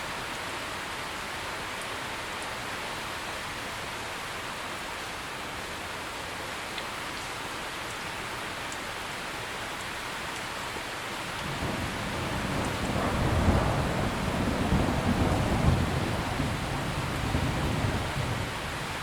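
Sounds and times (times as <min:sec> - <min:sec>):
heavy rain: 0:00.0 - 0:19.0
low thunder rumble: 0:11.4 - 0:19.0.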